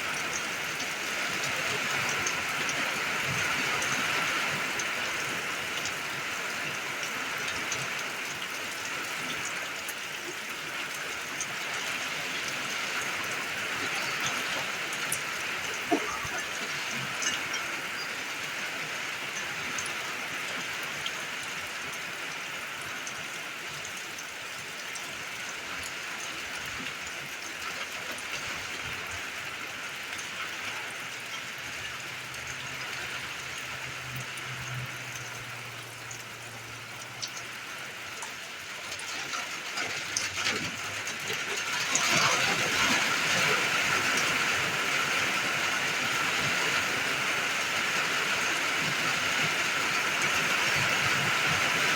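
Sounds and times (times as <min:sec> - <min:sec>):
rain pattering: 0:00.0 - 0:51.9.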